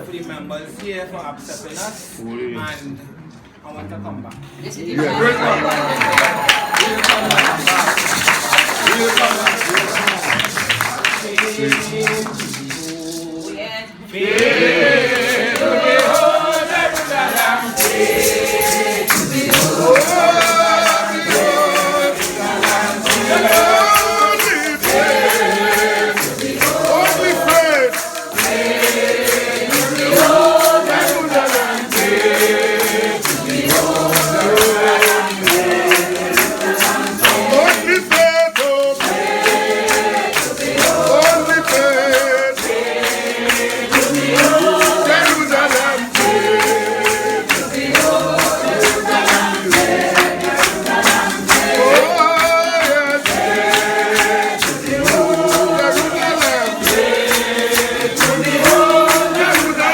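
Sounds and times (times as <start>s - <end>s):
congregation singing a hymn: 4.8s - 59.9s
steady percussive beat: 14.3s - 59.9s.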